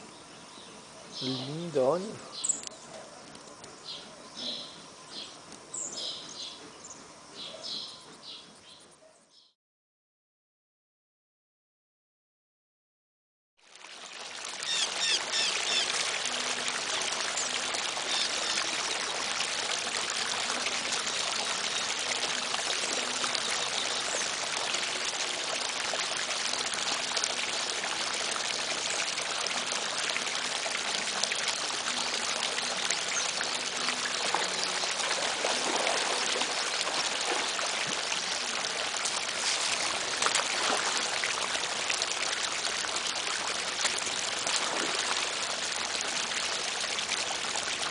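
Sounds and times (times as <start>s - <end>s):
running water rushing: 1.1s - 2.7s, 13.6s - 47.9s.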